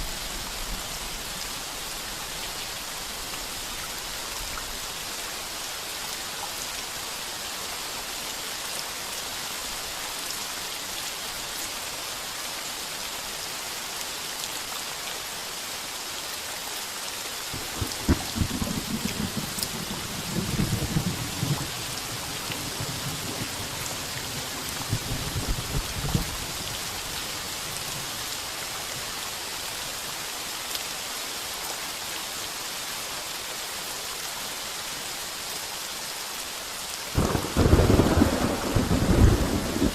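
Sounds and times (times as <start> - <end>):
heavy rain on a tin roof: 0.0 - 39.9
thunder rumbling: 17.6 - 26.6, 37.2 - 39.9.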